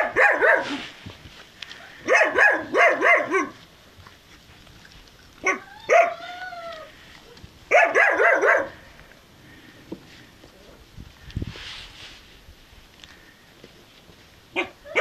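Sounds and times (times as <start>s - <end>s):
puppies yapping: 5.2s - 8.8s, 14.6s - 15.0s
puppy whining: 5.4s - 7.5s.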